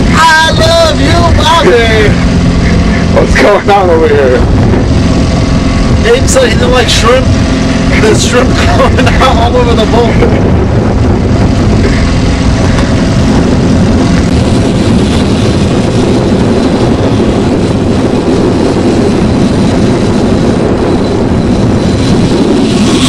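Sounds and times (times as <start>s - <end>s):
boat motor running: 0.0s - 23.0s.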